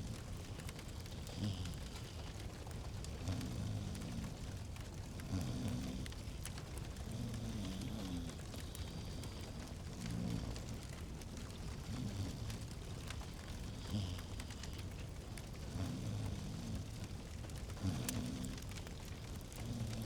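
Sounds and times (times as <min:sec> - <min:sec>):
fireplace crackling: 0:00.0 - 0:20.0.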